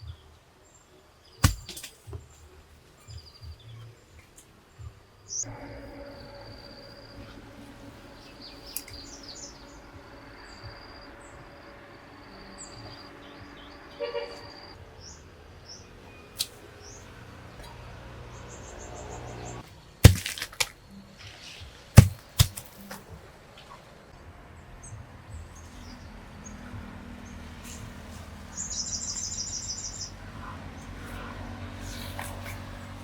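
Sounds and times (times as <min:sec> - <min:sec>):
birds chirping: 0:03.0 - 0:23.0, 0:24.8 - 0:33.0
loud sharp knocks: 0:22.0 - 0:22.6.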